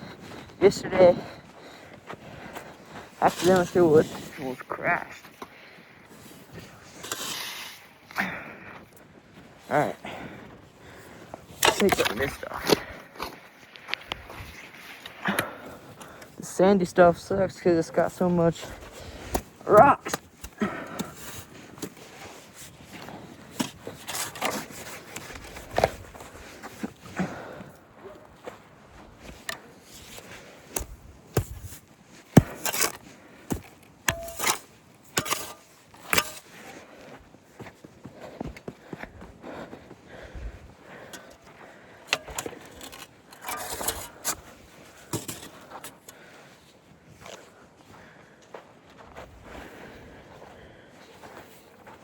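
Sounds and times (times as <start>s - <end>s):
footsteps on sandy rocky ground: 0.0s - 7.2s, 7.8s - 52.0s.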